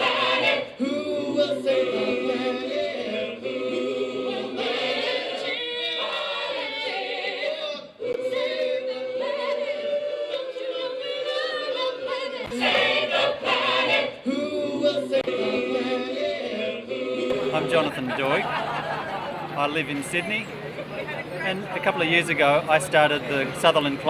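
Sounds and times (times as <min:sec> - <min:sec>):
group singing a cappella: 0:00.0 - 0:19.6.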